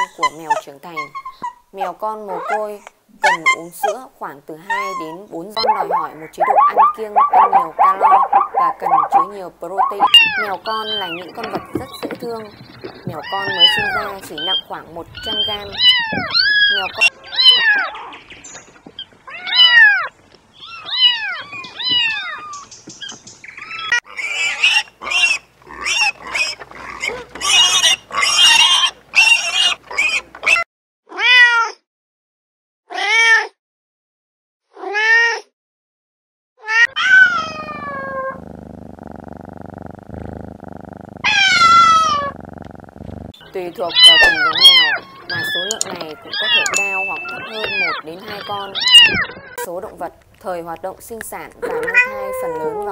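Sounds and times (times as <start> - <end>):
kittens meowing: 4.6 - 30.6, 36.7 - 38.4, 41.2 - 42.4, 43.4 - 49.7, 51.5 - 52.9.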